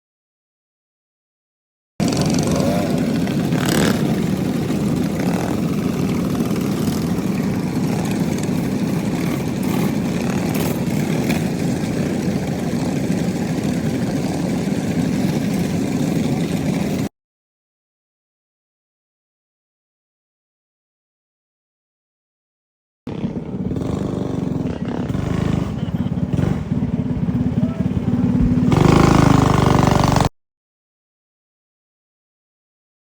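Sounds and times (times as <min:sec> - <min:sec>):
small engine running: 0:02.0 - 0:17.1, 0:23.1 - 0:30.3.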